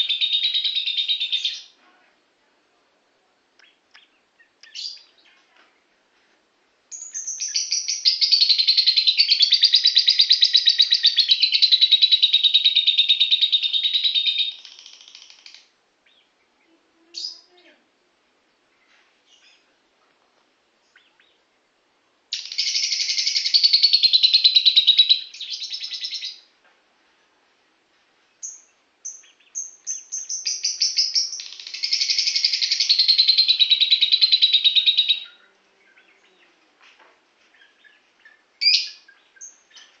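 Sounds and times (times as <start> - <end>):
bird chirps: 0.0 - 1.8, 3.6 - 5.5, 6.9 - 17.7, 20.8 - 21.6, 22.3 - 26.5, 28.2 - 36.7, 37.4 - 40.0
lovebird chattering trills: 28.4 - 36.4.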